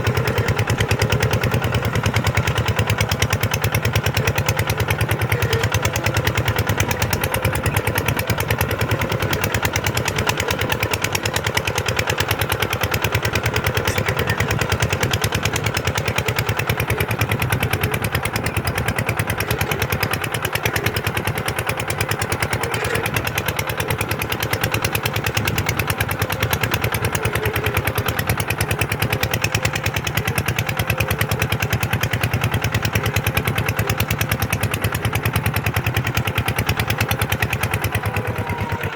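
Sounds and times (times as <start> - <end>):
tractor diesel engine under load: 0.0 - 38.9.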